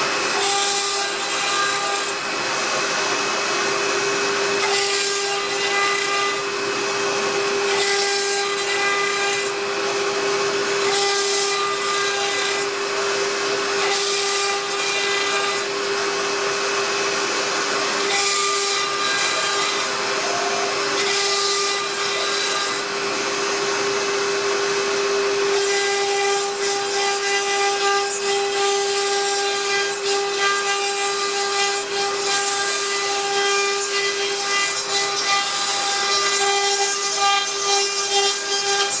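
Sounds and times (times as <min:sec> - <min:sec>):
hissing cutting noise: 0:00.0 - 0:28.1
router spindle whining: 0:00.0 - 0:39.0.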